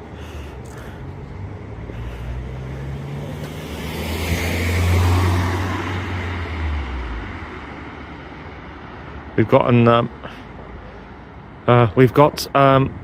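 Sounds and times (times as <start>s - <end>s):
vehicle passing by: 0.0s - 9.0s.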